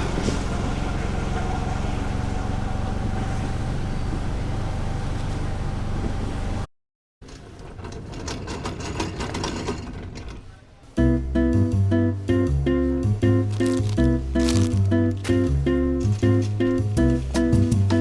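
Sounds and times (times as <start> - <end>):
vehicle engine humming: 0.0 - 6.7, 13.0 - 18.0.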